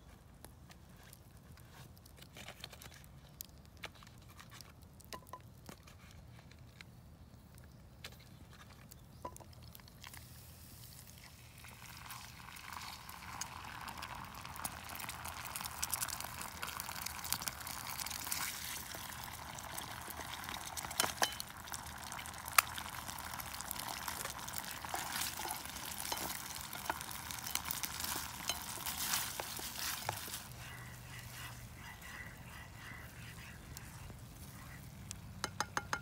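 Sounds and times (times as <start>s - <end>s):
food sizzling in a pan: 10.3s - 34.0s.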